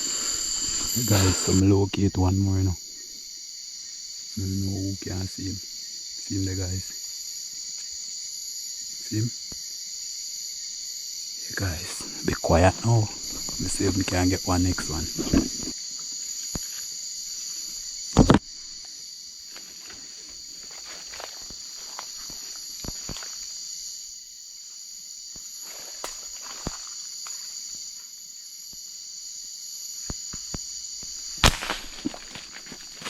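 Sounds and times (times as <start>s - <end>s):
crickets trilling: 0.0s - 33.0s.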